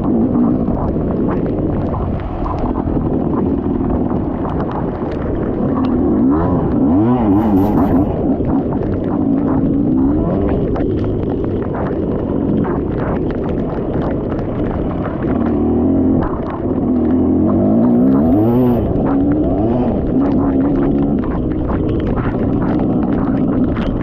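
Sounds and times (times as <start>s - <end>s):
dirt bike engine revving: 5.4s - 8.8s, 15.3s - 21.1s.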